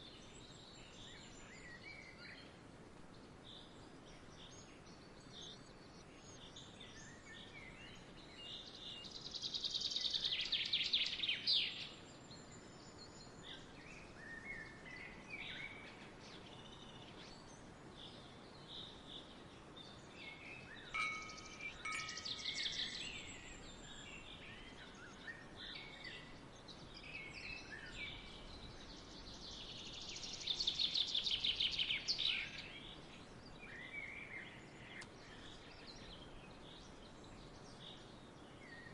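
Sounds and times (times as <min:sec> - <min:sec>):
faint outdoor background: 0:00.0 - 0:38.9
songbirds chirping: 0:00.0 - 0:38.9
rapid bird trill: 0:20.9 - 0:23.0.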